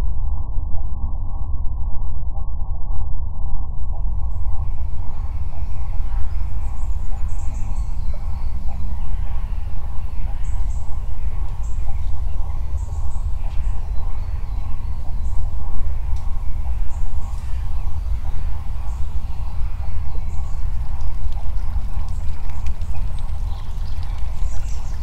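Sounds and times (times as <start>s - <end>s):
loud steady low rumble: 0.0s - 25.0s
small birds chirping: 4.3s - 25.0s.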